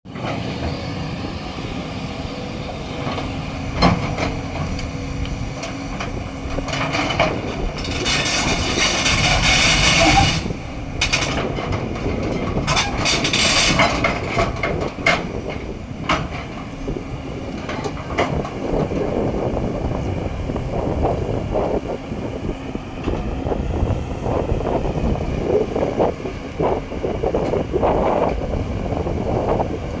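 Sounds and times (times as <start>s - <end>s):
excavator engine running: 0.1s - 30.0s
clanks and knocks: 5.6s - 16.6s.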